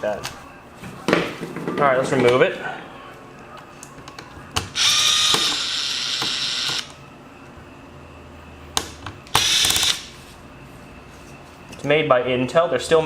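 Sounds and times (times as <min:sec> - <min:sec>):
electric screwdriver running: 0:04.8 - 0:06.9, 0:09.4 - 0:10.0.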